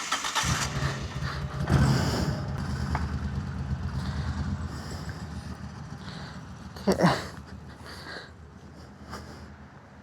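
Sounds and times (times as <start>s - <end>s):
motorcycle starter: 0.0s - 4.5s
motorcycle engine revving and idling: 0.0s - 8.5s.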